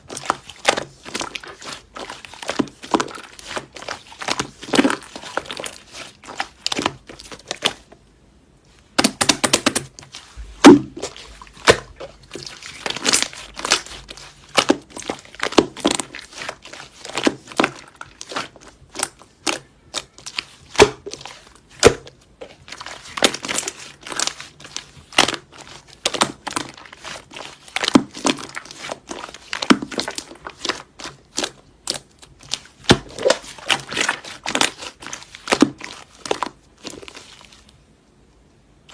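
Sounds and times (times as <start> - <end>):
slime crackling and popping: 9.0 - 37.7.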